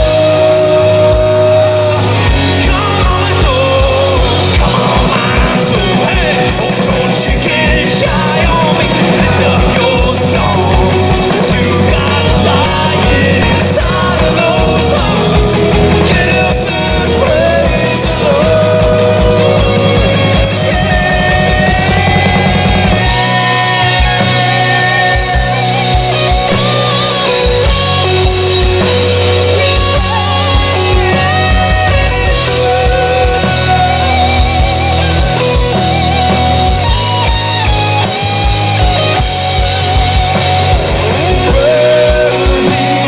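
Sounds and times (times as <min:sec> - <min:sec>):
bending lead melody: 0:00.0 - 0:43.0
fast kick-drum beat: 0:00.0 - 0:43.0
rock band playing: 0:00.0 - 0:43.0.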